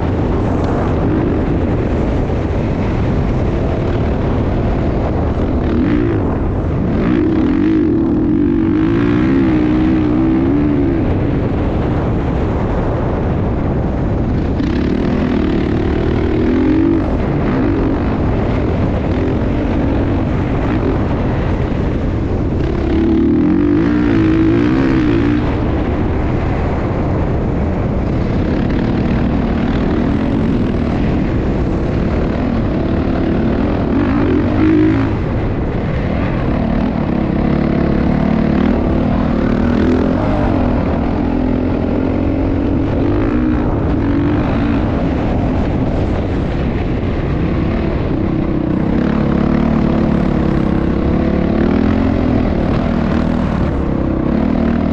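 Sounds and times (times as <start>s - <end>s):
motocross motorcycle engine revving: 0.0s - 54.9s.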